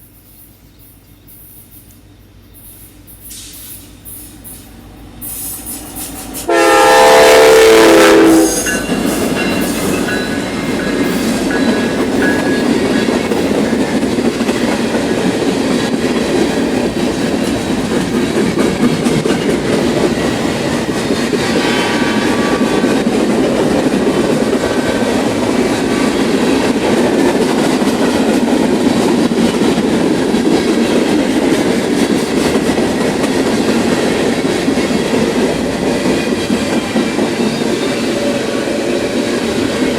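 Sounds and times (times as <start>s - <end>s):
train wheels rumbling on rails: 0.0s - 39.9s
train air horn blast: 4.8s - 10.0s, 21.4s - 23.7s.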